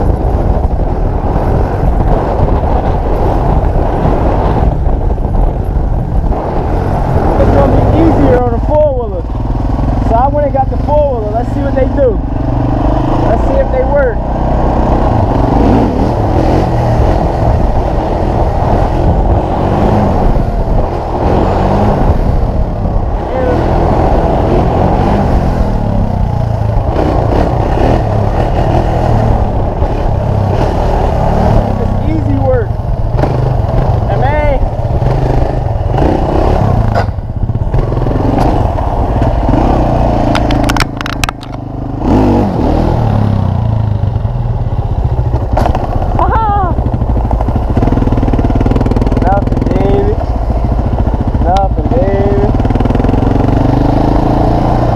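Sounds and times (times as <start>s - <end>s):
off-road vehicle engine running: 0.0s - 54.9s
sharp clicks and clatter: 40.2s - 41.6s.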